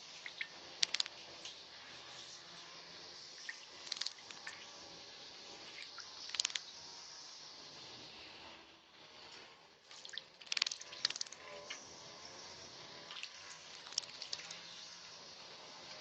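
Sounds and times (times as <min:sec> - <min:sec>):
bird splashing in water: 0:10.0 - 0:11.4, 0:13.1 - 0:14.5.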